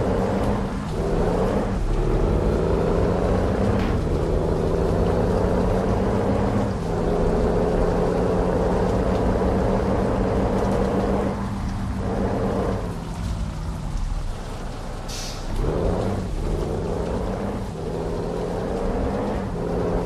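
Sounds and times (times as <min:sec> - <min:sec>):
truck diesel engine running: 0:00.0 - 0:20.0.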